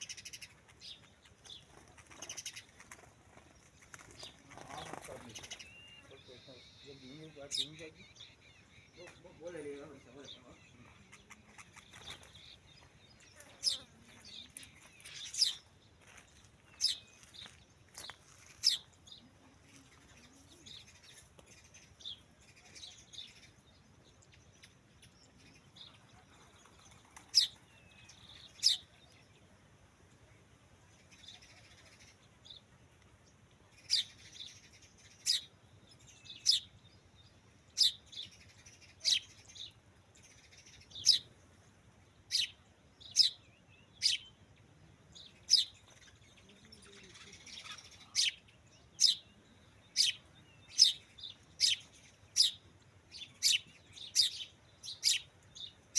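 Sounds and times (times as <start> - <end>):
bird chirping: 0.0 - 29.6, 33.3 - 55.9.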